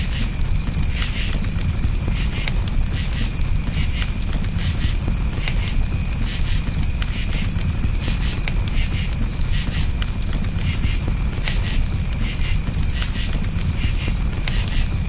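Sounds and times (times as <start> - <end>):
campfire crackling and popping: 0.0 - 15.0
crickets chirping: 0.0 - 15.0.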